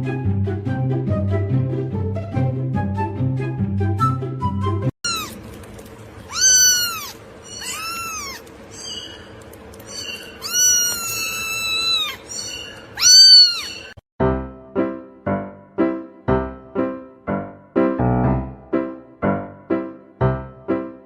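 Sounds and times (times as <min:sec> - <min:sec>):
cat meowing: 0:05.1 - 0:05.4, 0:06.3 - 0:09.2, 0:09.9 - 0:14.0.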